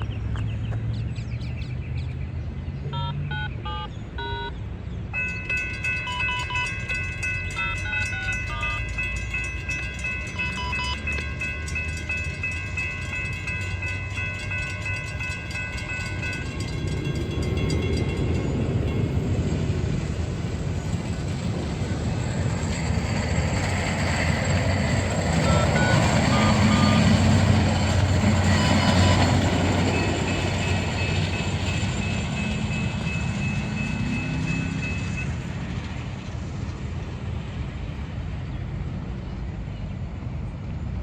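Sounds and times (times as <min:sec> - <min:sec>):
train rumbling past: 0:04.7 - 0:41.0
train horn: 0:25.5 - 0:30.0.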